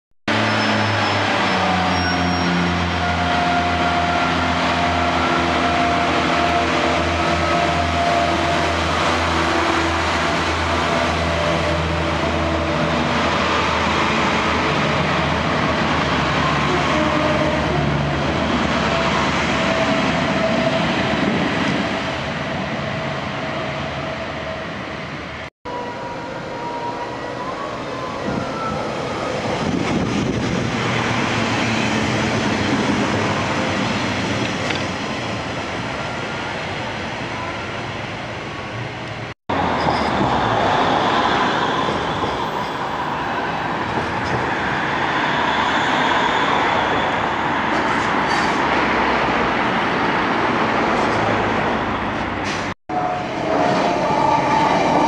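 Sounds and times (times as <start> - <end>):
diesel train engine drone: 0.3 - 55.0
train wheels on rails: 28.2 - 35.8, 39.0 - 55.0.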